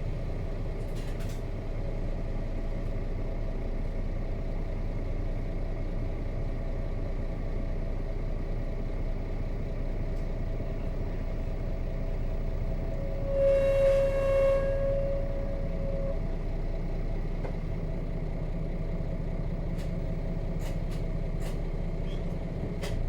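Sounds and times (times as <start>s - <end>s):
bus diesel engine running: 0.0s - 23.0s
loud steady tone: 12.6s - 16.5s.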